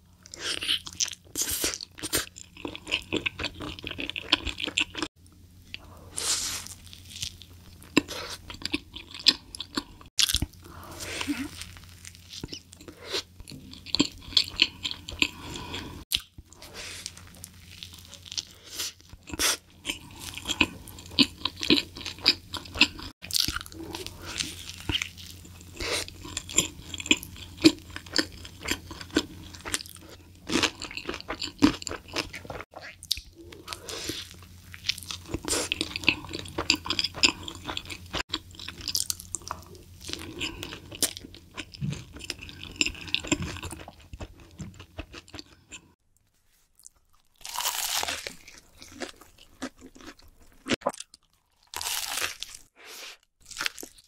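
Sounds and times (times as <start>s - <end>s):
chewing a hamburger: 17.0s - 46.0s, 46.7s - 52.7s, 53.4s - 54.0s.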